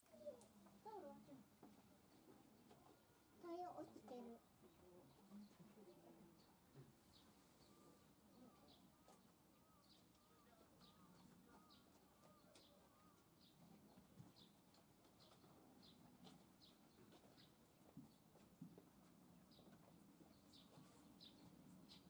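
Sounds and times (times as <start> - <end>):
faint bird chirps: 6.8 - 13.6.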